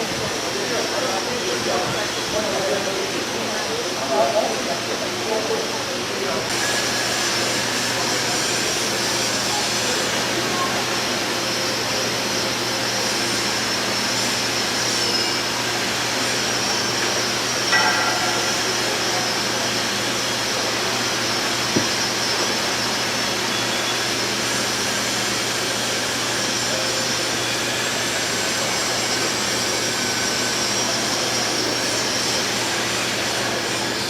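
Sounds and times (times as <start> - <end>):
loud mechanical roar: 6.5 - 30.0.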